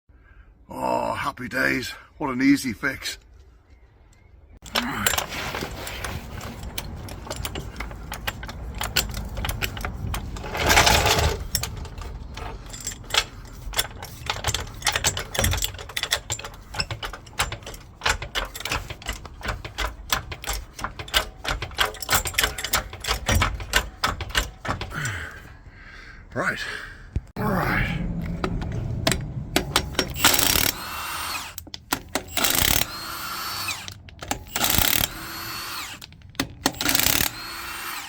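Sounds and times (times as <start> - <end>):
impact wrench rattling: 4.6 - 25.1, 28.2 - 38.0.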